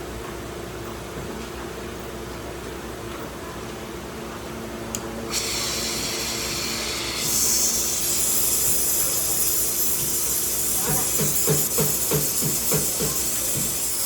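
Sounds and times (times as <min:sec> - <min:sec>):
steady mechanical hum: 0:00.0 - 0:14.0
loud hiss: 0:05.3 - 0:14.0.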